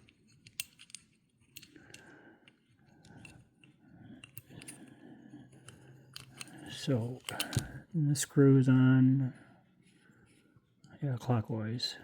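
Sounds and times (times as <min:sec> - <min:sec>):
faint metal clicks: 0:05.5 - 0:07.8.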